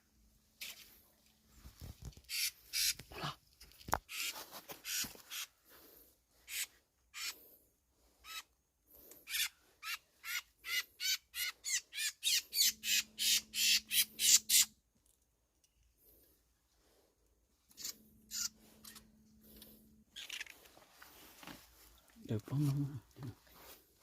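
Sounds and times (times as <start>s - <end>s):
bird squawking harshly: 2.3s - 3.0s, 4.1s - 5.5s, 6.5s - 7.4s, 9.2s - 14.7s, 17.8s - 19.0s.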